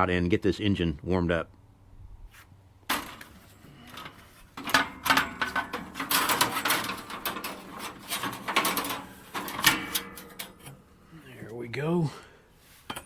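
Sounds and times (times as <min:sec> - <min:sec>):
metal clanking and rattling: 0:02.9 - 0:11.1.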